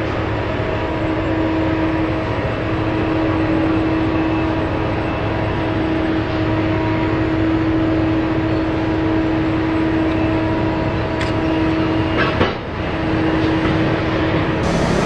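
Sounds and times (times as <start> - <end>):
heavy machine hum: 13.4 - 15.0
sustained tone: 14.6 - 15.0.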